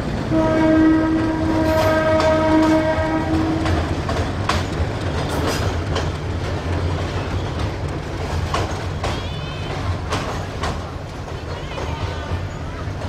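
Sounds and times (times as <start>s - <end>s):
train rumbling over steel bridge: 0.0s - 13.0s
wheels clacking over rail joints: 0.0s - 13.0s
locomotive horn: 0.2s - 4.0s.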